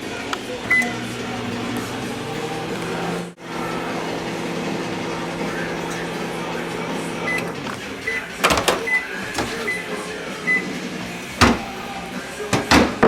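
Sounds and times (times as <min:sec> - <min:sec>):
appliance hum: 0:00.0 - 0:13.0
sharp knocks: 0:12.6 - 0:13.0.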